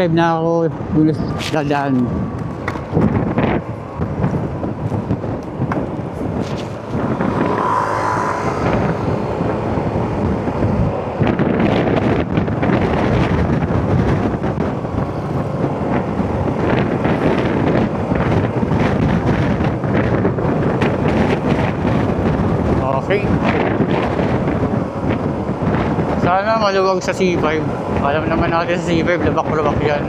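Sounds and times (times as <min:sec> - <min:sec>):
road and traffic noise: 0:00.0 - 0:30.0
wind buffeting microphone: 0:00.0 - 0:30.0
motorcycle engine: 0:02.5 - 0:21.4.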